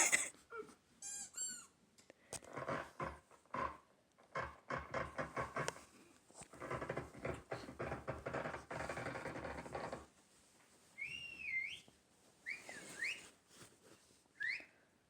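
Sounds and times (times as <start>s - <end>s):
swooping whistled phrases: 14.4s - 14.7s.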